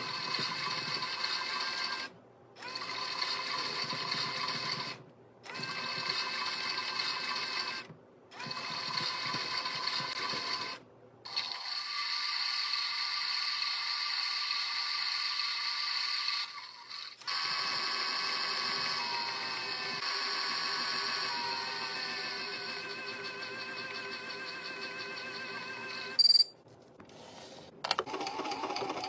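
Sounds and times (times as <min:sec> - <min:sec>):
small electric motor whine: 0:11.4 - 0:26.2.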